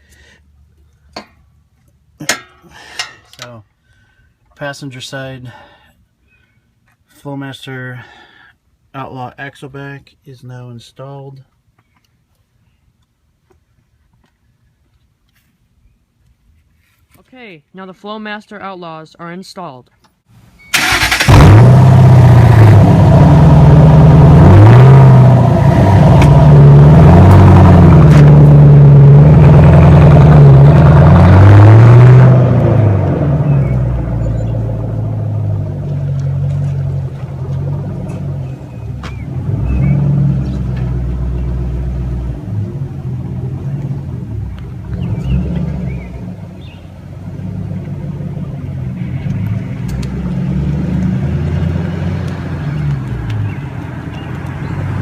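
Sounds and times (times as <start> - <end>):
car engine revving and idling: 20.8 - 55.0.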